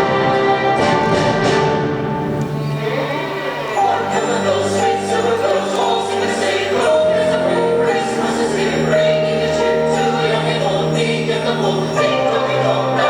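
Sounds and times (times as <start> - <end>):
choir singing long notes: 0.0 - 13.0
sleigh bells ringing: 2.6 - 13.0.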